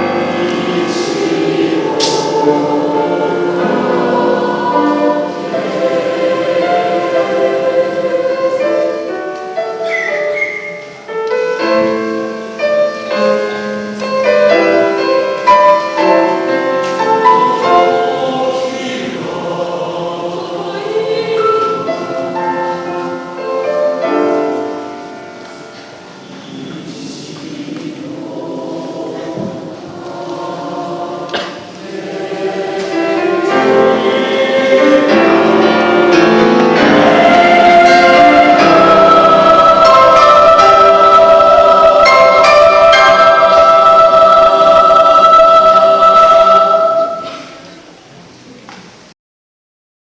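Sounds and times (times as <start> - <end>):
choir singing in harmony: 0.0 - 48.2.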